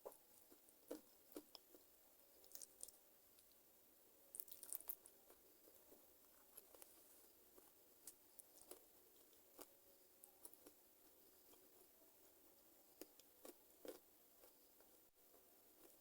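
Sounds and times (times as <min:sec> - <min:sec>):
chewing crunches and clicks: 0:00.0 - 0:03.6, 0:04.3 - 0:07.0, 0:07.6 - 0:10.8, 0:13.0 - 0:14.9.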